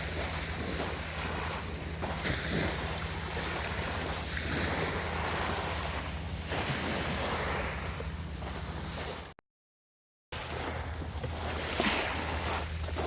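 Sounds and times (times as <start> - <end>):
waves washing onto shore: 0.0 - 9.4, 10.4 - 13.0
wind rumbling on microphone: 0.0 - 9.4.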